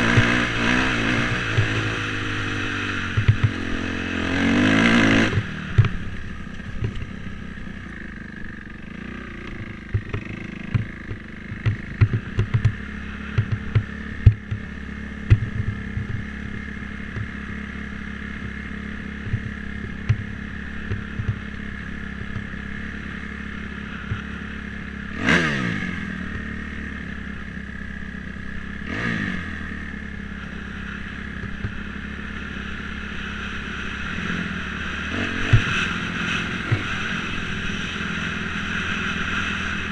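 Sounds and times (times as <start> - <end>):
dirt bike engine revving: 0.0 - 39.9
sharp knocks and clatter: 3.1 - 3.7, 6.7 - 7.1, 9.7 - 16.3, 17.1 - 17.4, 19.2 - 21.6.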